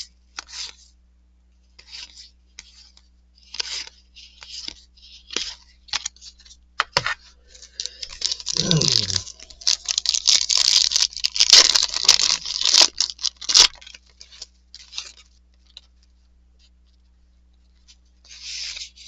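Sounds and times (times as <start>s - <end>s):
cards and wrapper crinkling: 7.4s - 16.0s
paper wrapper ripping: 7.6s - 15.8s.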